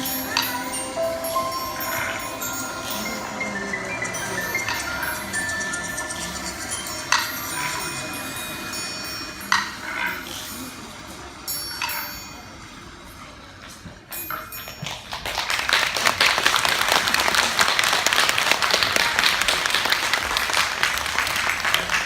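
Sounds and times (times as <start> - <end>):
audience applause: 0.0 - 9.2, 14.9 - 22.0
chime strikes: 0.0 - 12.7.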